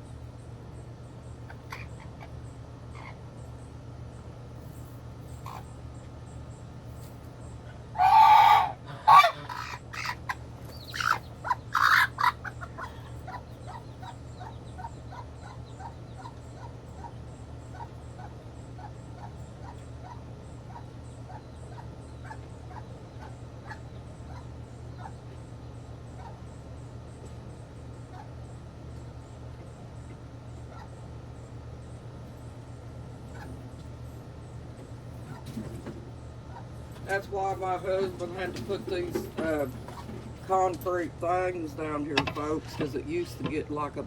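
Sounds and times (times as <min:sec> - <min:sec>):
small birds peeping: 0:00.0 - 0:44.0
goose honking: 0:07.9 - 0:14.2.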